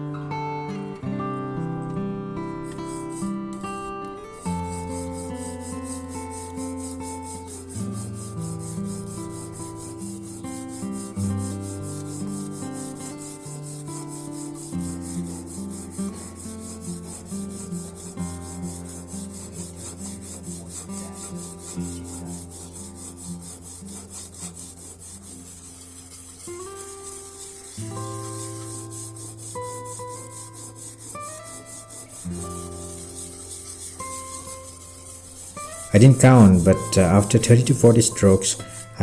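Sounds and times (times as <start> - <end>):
plane iron rubbing on oil stone: 2.6 - 39.0
background music: 35.8 - 39.0.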